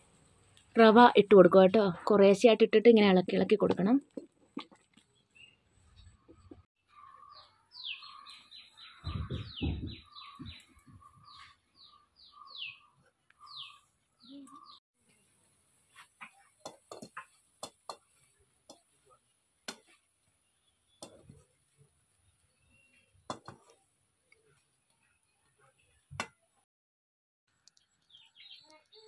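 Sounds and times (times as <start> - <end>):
bird chirping: 5.1 - 14.8, 27.6 - 29.0
spatula stirring in metal pan: 15.0 - 23.8.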